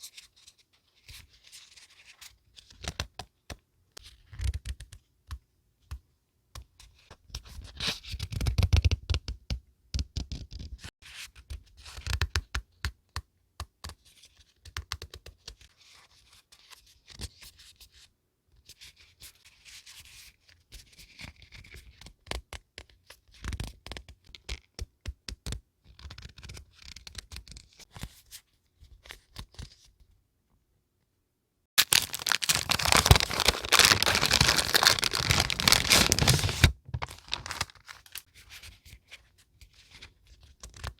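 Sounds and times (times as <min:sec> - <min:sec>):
paper taps and rustles: 0:31.8 - 0:38.2
paper tearing and crinkling: 0:31.8 - 0:38.2.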